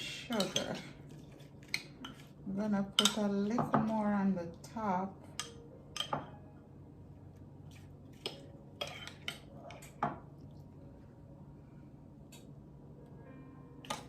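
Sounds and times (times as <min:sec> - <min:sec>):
utensil clinking against bowl: 0:02.9 - 0:04.0.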